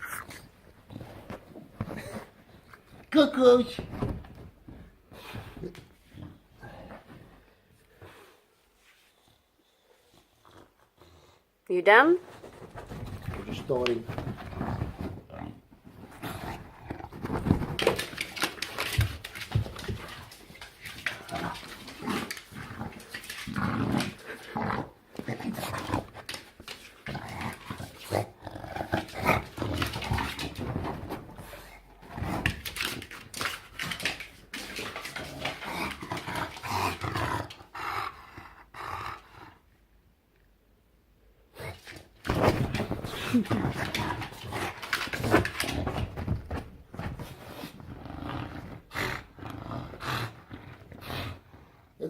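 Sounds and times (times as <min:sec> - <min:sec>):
dog grumbling and growling: 0:12.8 - 0:39.6, 0:41.5 - 0:52.0.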